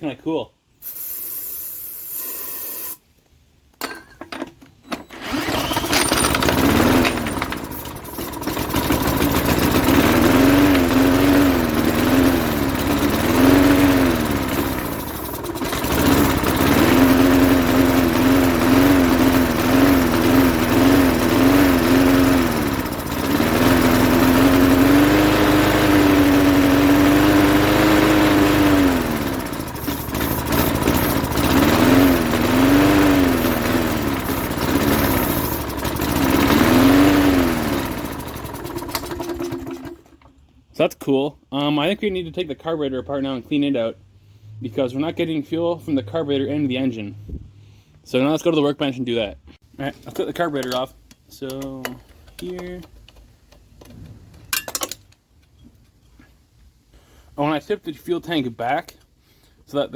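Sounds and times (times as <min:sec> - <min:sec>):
lawn mower engine running unevenly: 0:04.9 - 0:40.3.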